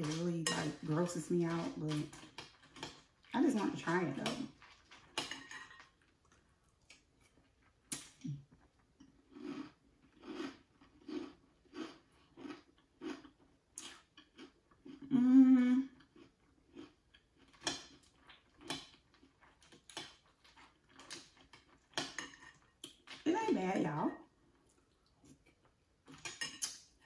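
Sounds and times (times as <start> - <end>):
chewing cereal: 0.0 - 15.1, 15.9 - 23.3, 24.2 - 27.0
person humming: 15.1 - 15.9.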